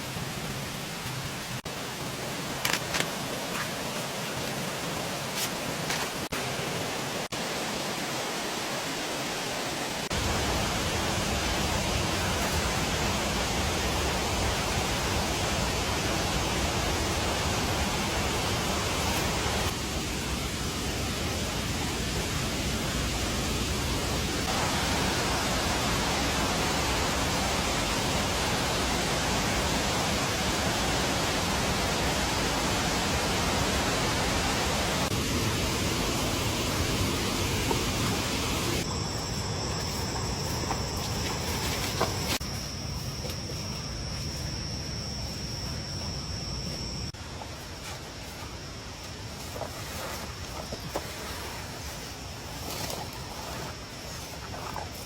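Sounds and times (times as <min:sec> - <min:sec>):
rushing water: 0:00.0 - 0:19.8, 0:21.4 - 0:38.9.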